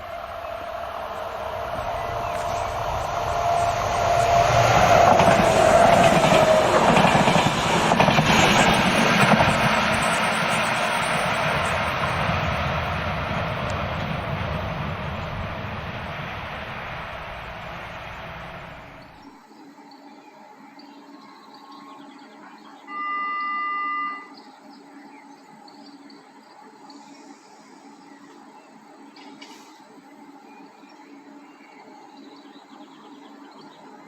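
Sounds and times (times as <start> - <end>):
train wheels rumbling and clattering: 0.0 - 19.2
high tone dropping in pitch: 22.9 - 24.3.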